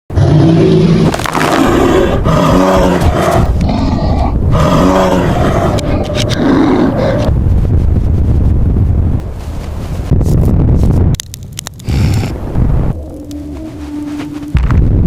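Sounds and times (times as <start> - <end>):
large animal roaring: 0.1 - 7.4, 12.8 - 14.4
low rumble: 11.8 - 15.0.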